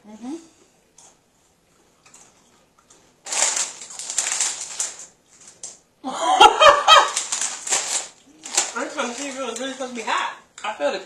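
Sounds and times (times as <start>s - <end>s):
crunchy chips being chewed: 1.0s - 5.8s, 7.0s - 9.8s
laughter: 6.0s - 7.2s.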